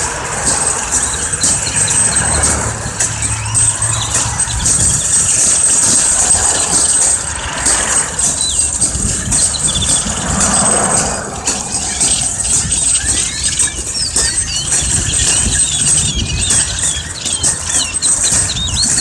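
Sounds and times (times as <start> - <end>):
flock of birds calling: 0.0 - 19.0
low steady rumble: 1.6 - 13.3.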